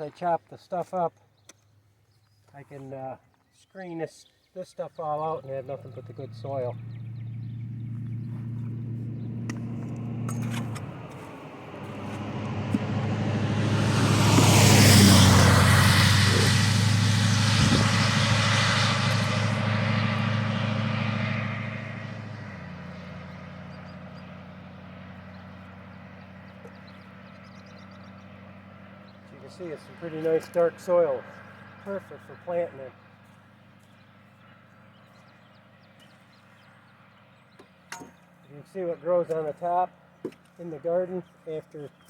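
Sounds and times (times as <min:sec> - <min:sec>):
road vehicle passing by: 0:05.1 - 0:42.0
steady low hum: 0:05.3 - 0:33.4.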